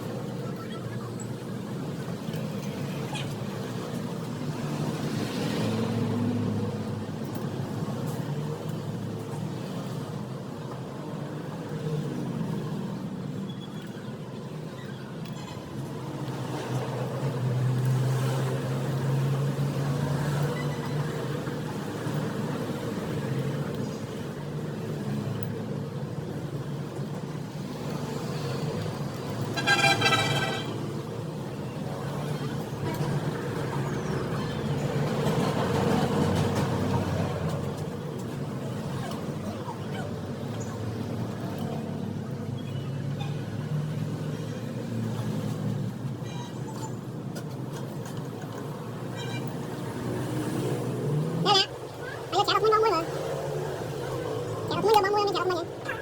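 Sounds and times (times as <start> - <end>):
road traffic rumble: 0.0 - 56.0
vehicle horn toot: 29.5 - 30.9.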